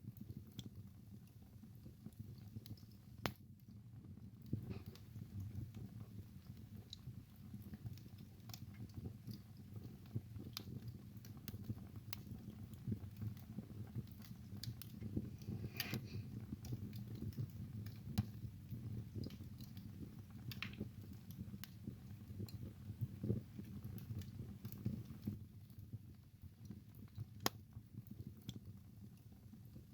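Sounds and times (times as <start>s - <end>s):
low rumble of flame: 0.0s - 29.9s
wood fire crackling and popping: 0.0s - 29.9s.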